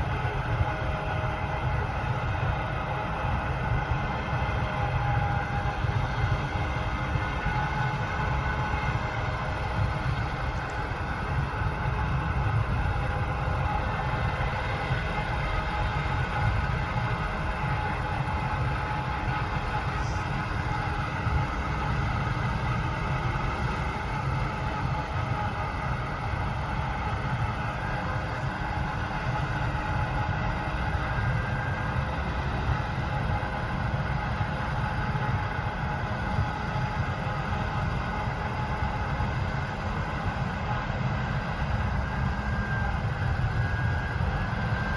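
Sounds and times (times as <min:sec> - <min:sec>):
mechanical hum and whine: 0:00.0 - 0:44.9.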